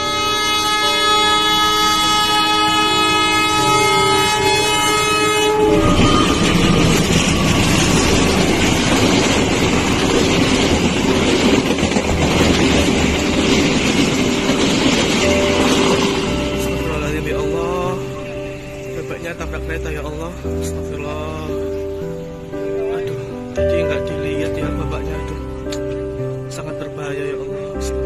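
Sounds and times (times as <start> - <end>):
train horn blast: 0.0 - 8.6
train carriages rumbling past: 0.0 - 28.0.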